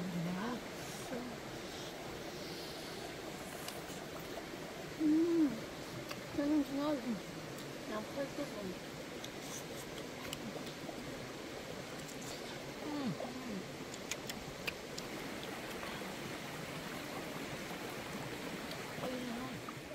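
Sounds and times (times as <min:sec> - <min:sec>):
background hiss: 0:00.0 - 0:19.9
person humming mm: 0:05.0 - 0:05.6
people chewing with lip-smacking: 0:13.9 - 0:15.9.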